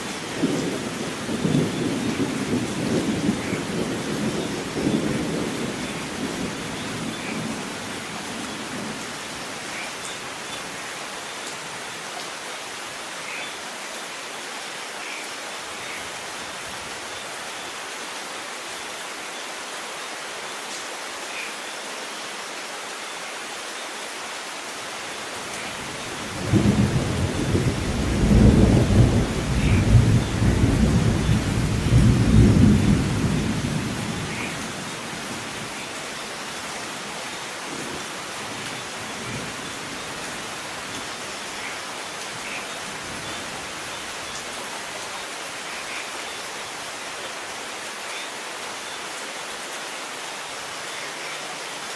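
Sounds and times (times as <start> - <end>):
rain hissing: 0.0 - 51.9
thunder rumbling: 26.3 - 34.7.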